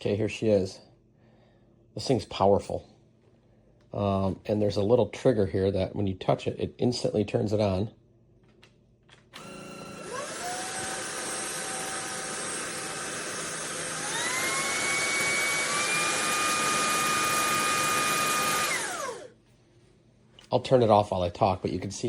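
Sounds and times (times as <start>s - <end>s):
vacuum cleaner motor whining: 9.4s - 19.3s.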